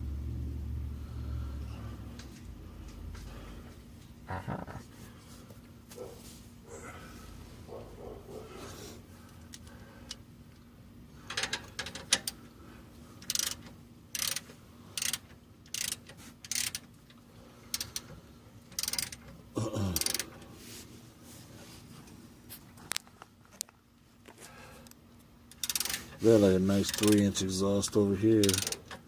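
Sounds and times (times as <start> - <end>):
ratchet wrench ratcheting: 11.3 - 12.4, 13.2 - 16.9, 17.7 - 19.3, 20.0 - 20.4, 25.5 - 27.4, 28.3 - 29.0.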